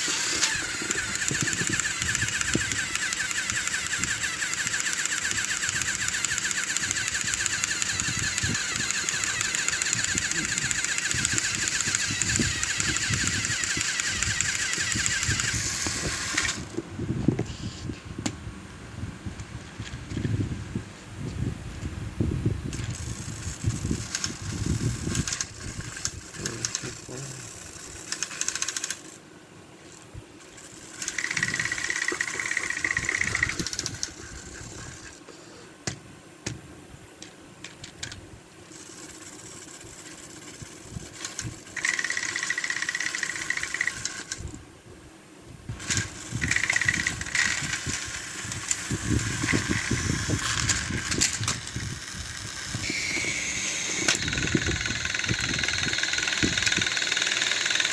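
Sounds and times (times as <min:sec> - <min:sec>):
plastic wheels rattling on track: 0:00.0 - 0:16.7, 0:22.7 - 0:29.2, 0:30.6 - 0:35.2, 0:38.7 - 0:44.4, 0:45.8 - 0:57.9
toy train motors whirring: 0:00.0 - 0:17.9, 0:22.7 - 0:29.2, 0:29.8 - 0:35.6, 0:37.2 - 0:44.6, 0:45.7 - 0:57.9.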